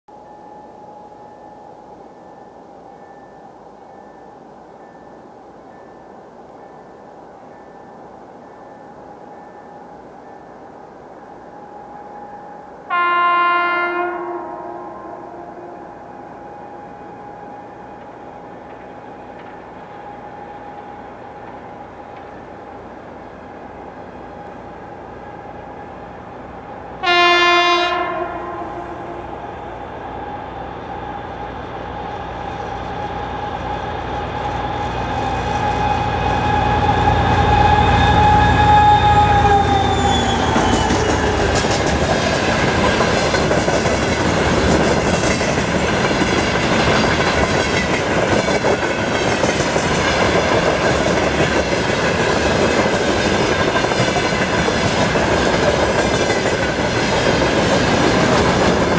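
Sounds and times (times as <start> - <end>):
locomotive horn blast: 12.9 - 16.9, 27.0 - 29.8, 33.0 - 41.6
clickety-clack of wheels over rail joints: 17.9 - 23.2, 38.2 - 58.9
diesel engines whining: 29.0 - 42.9.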